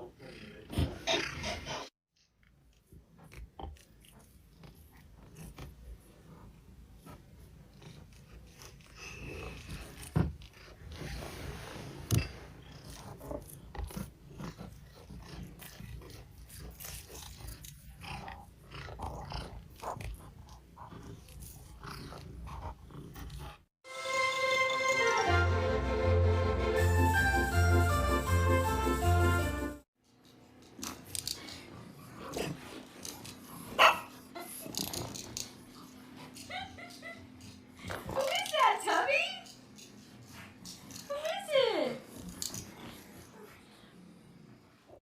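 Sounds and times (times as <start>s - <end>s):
cat purring: 2.7s - 23.7s, 42.0s - 45.0s
music: 23.9s - 29.8s.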